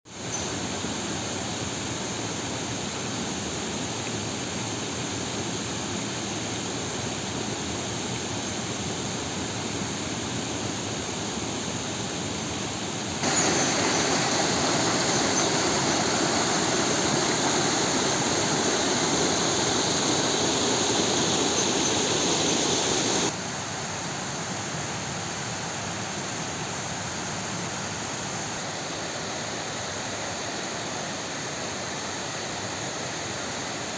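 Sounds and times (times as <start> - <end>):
waterfall rushing: 13.2 - 23.3.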